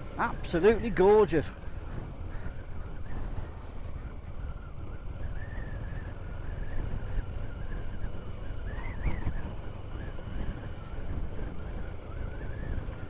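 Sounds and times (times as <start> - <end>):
motorcycle running: 0.0 - 13.0
wind buffeting microphone: 0.0 - 13.0
faint wavering high whistle: 4.3 - 11.0.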